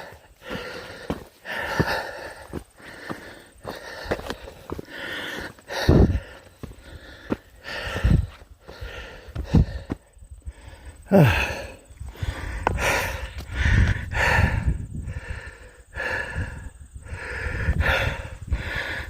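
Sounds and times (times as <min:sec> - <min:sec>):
man breathing hard: 0:00.0 - 0:19.0
man groaning: 0:11.0 - 0:11.8.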